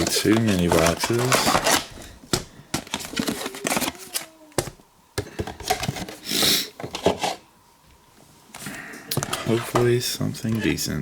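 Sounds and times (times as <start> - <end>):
packaging rustling: 0.0 - 4.8, 8.6 - 10.0.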